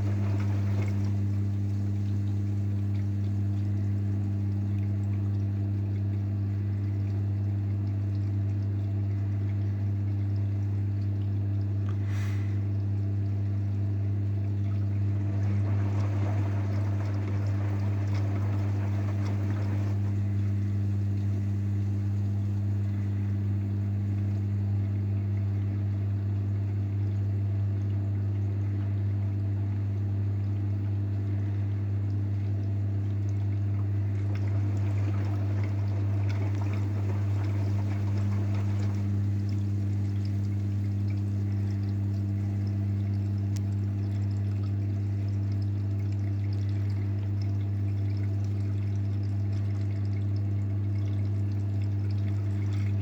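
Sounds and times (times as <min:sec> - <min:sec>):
water pouring and trickling: 0:00.0 - 0:23.0, 0:30.3 - 0:53.0
low electrical hum: 0:00.0 - 0:53.0
washing machine running: 0:00.0 - 0:53.0.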